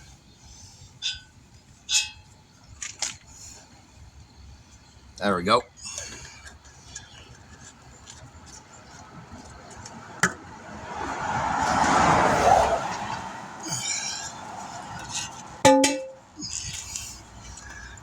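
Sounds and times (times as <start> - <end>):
car driving past: 9.9 - 15.6.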